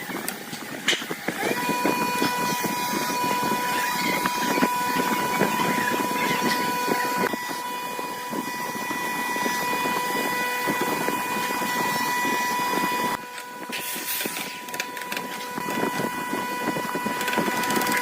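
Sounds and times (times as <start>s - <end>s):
power tool whining: 0.0s - 18.0s.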